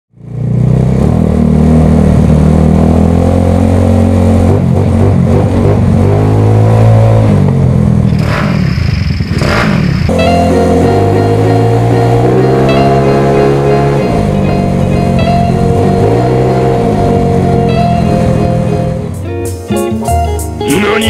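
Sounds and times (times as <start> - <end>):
motorcycle engine revving: 0.1 - 19.3
music: 10.1 - 21.0.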